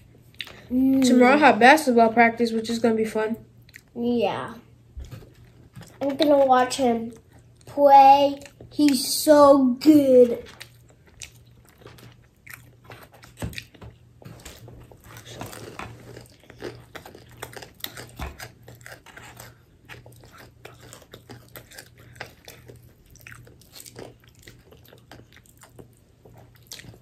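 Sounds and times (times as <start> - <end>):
chewing and crunching: 5.0 - 9.2, 10.0 - 27.0.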